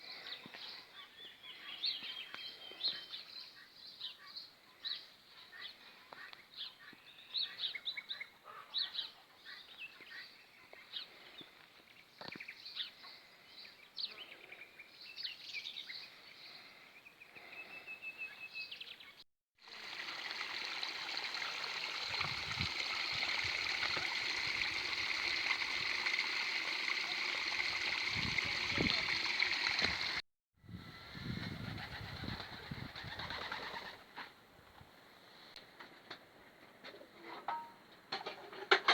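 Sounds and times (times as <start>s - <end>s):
small birds chirping: 0.0s - 19.2s, 19.9s - 30.2s
running water stream: 19.6s - 30.2s.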